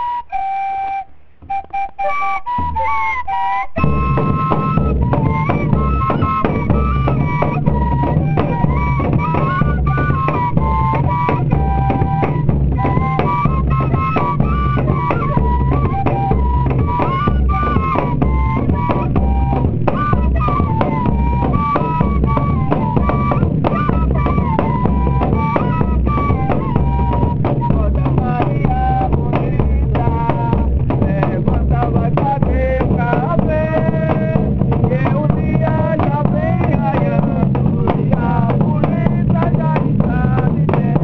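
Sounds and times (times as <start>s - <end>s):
fife playing a melody: 0.0s - 29.1s
bass drum and snare beat: 3.8s - 41.0s.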